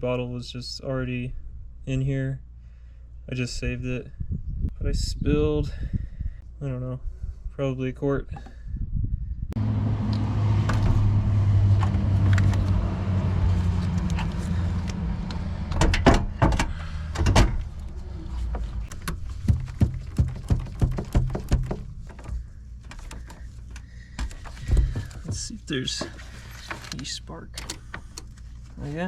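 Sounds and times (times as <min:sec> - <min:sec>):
sharp clicks and knocks: 0:18.5 - 0:27.0.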